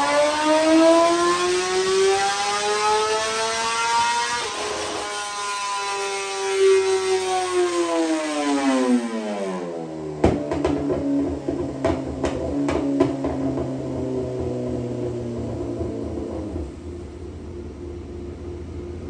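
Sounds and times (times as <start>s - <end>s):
motorcycle engine winding down: 0.0s - 17.6s
motorcycle engine idling: 10.0s - 17.6s.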